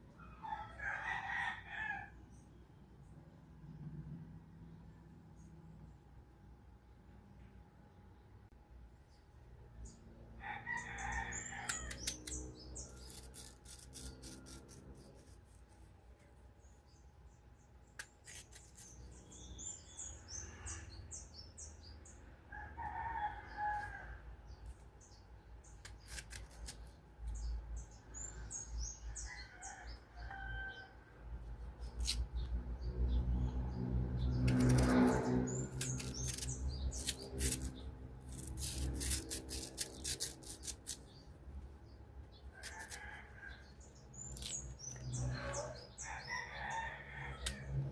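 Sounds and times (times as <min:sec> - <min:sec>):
knife slicing crunchy mango: 0:34.4 - 0:41.1.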